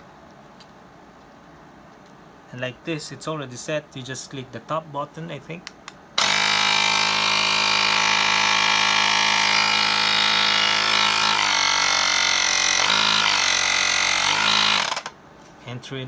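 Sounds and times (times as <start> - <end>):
tire inflator compressor droning: 6.2 - 15.1.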